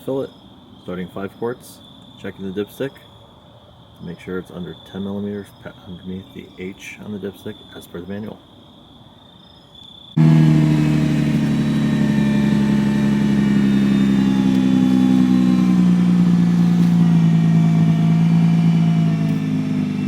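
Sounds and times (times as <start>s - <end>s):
car engine idling: 10.2s - 20.0s.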